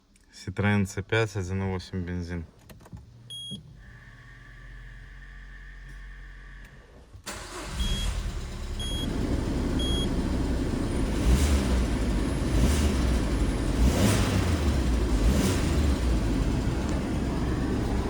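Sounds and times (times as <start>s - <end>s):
car engine starting and running: 2.8s - 18.0s
short electronic car beeps: 3.3s - 3.6s, 7.7s - 8.2s, 8.8s - 9.1s, 9.8s - 10.1s.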